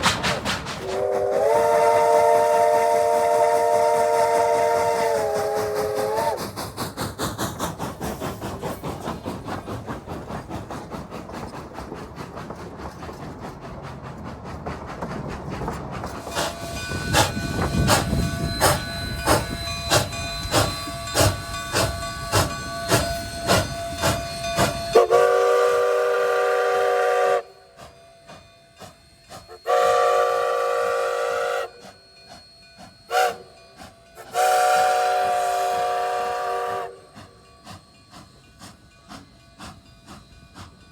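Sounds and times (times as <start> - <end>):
steam locomotive chuffing: 0.0 - 40.9
locomotive chime whistle: 0.9 - 6.6, 16.2 - 40.9.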